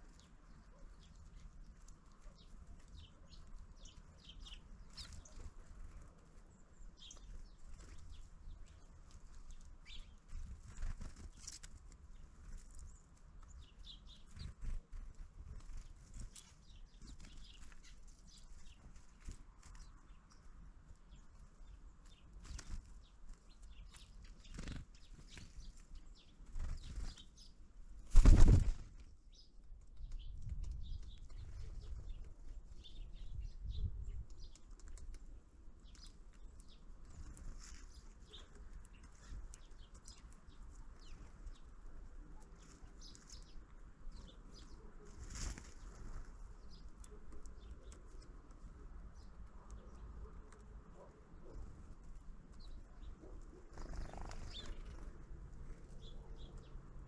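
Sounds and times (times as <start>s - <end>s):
birds tapping and pecking: 0.0s - 57.0s
bird wings flapping: 10.3s - 11.8s, 22.3s - 25.8s, 26.4s - 27.4s, 28.0s - 29.1s, 45.1s - 46.4s, 53.7s - 55.1s.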